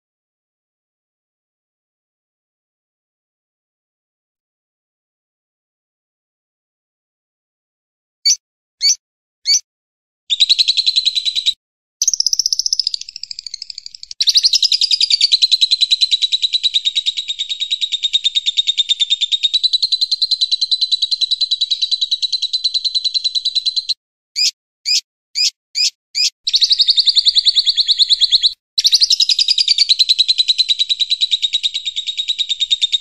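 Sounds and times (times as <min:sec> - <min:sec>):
short bird chirps: 0:08.2 - 0:09.7, 0:10.3 - 0:33.0
songbird high trill: 0:08.3 - 0:09.6, 0:10.3 - 0:30.8.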